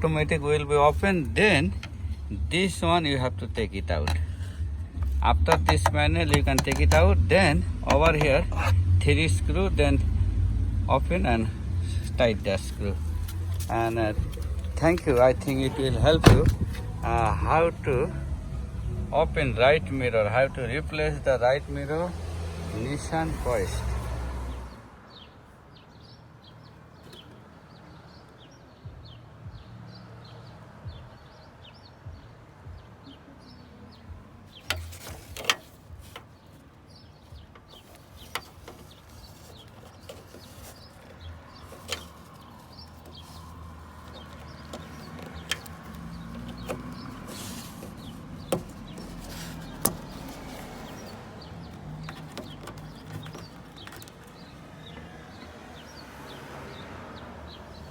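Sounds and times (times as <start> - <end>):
sharp clicks and knocks: 5.0 - 8.5, 44.1 - 55.0.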